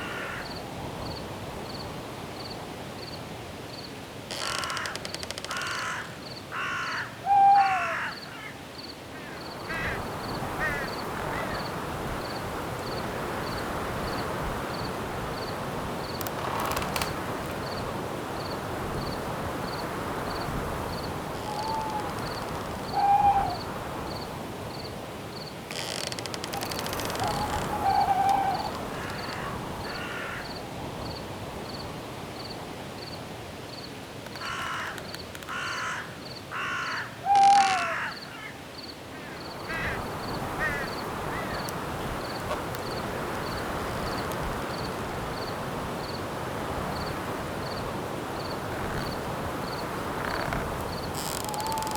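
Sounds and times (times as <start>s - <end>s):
crickets chirping: 0.0s - 51.9s
wind hiss: 0.0s - 51.9s
owl hooting: 6.6s - 8.5s, 21.4s - 23.7s, 26.8s - 30.3s, 36.6s - 38.1s, 51.2s - 51.9s
harsh bird calls: 21.4s - 23.7s, 26.5s - 30.5s, 51.1s - 51.9s.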